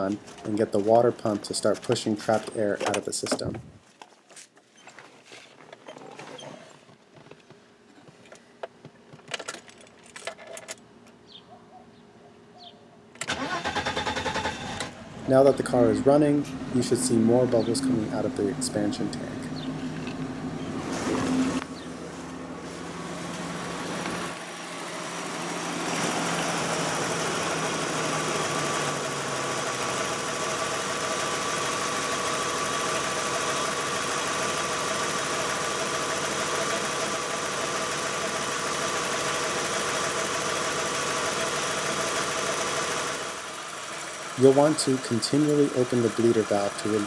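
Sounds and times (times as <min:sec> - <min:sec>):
car engine idling: 0:13.3 - 0:47.0.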